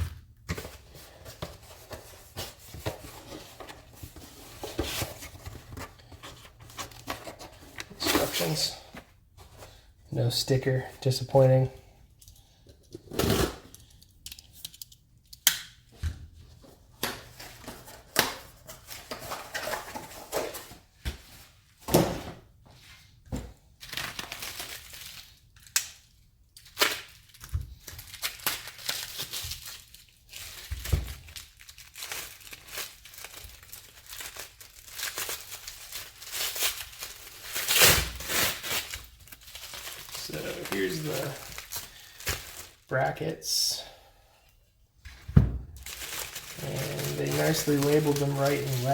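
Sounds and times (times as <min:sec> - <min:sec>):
packaging crinkling and tearing: 0:23.8 - 0:43.2, 0:45.8 - 0:48.9.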